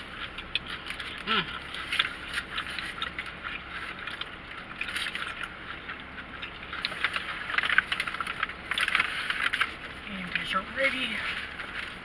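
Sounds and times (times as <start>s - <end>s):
chewing food: 0.0s - 12.0s.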